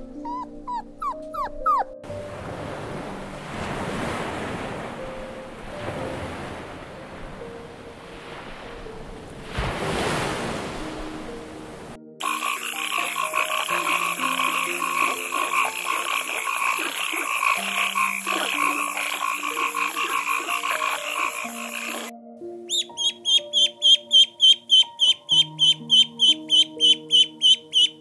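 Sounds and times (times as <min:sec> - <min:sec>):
soft music notes: 0:00.0 - 0:09.4
surf-like noise: 0:02.1 - 0:22.1
chorus of frogs trilling: 0:12.2 - 0:22.1, 0:22.7 - 0:28.0.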